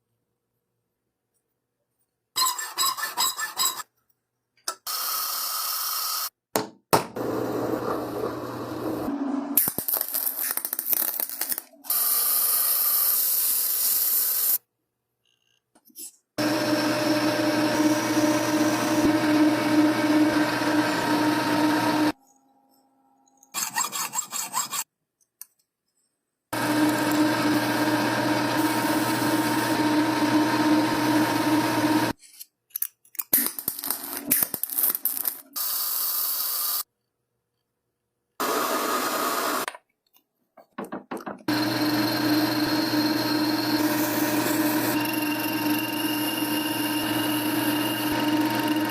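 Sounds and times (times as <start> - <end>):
power tool motor running: 16.4 - 22.2, 26.6 - 32.1, 41.5 - 48.9.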